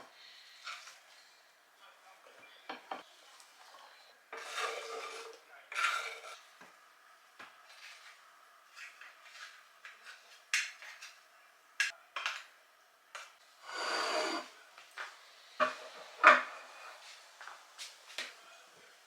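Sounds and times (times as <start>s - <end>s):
rasping scrape: 13.7s - 14.5s.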